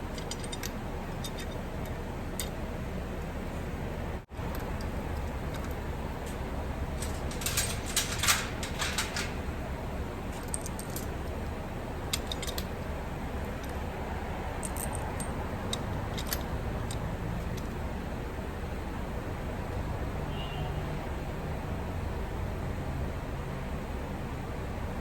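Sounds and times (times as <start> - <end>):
metal parts clinking: 0.0 - 2.6, 4.4 - 13.8, 14.6 - 17.8
low background hum: 0.0 - 19.5.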